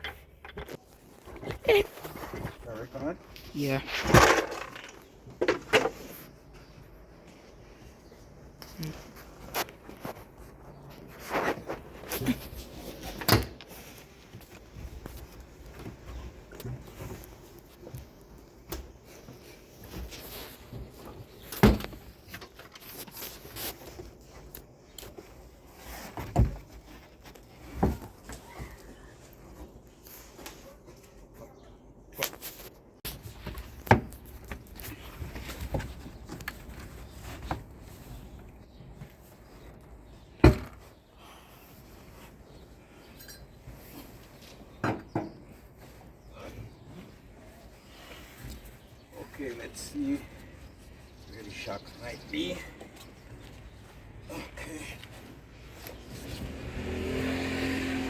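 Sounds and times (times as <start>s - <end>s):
rustling: 0.0s - 31.2s.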